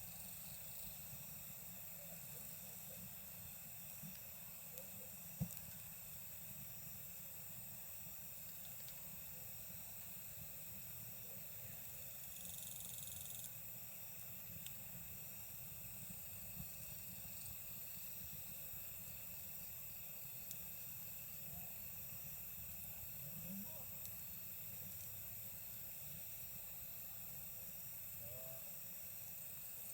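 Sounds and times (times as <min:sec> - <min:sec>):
insects chirring: 0:00.0 - 0:29.9
campfire crackling and popping: 0:14.4 - 0:15.0.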